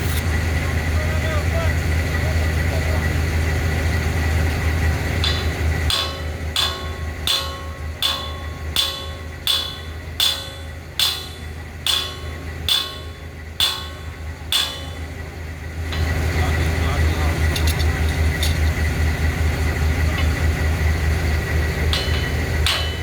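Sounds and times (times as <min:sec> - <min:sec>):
low engine hum: 0:00.0 - 0:23.0
hammer striking steel: 0:05.1 - 0:18.8, 0:20.1 - 0:23.0.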